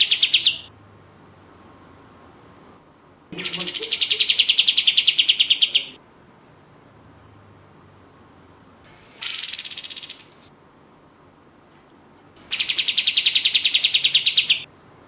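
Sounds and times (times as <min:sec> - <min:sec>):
bird rattling trill: 0:09.2 - 0:10.4, 0:12.5 - 0:14.6.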